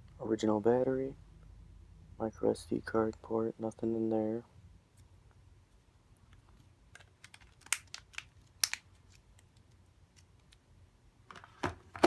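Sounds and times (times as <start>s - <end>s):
light clicks and crinkles: 6.1s - 10.7s.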